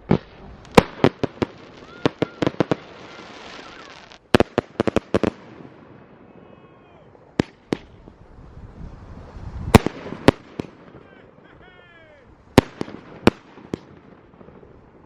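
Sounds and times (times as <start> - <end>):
fireworks cracks and bangs: 0.0 - 6.4, 7.2 - 8.2, 9.6 - 15.0.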